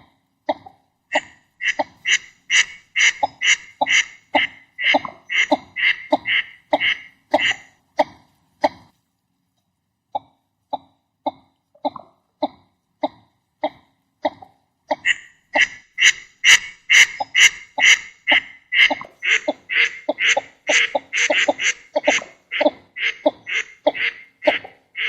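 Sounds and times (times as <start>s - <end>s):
duck calls: 1.1s - 7.8s, 14.9s - 25.0s.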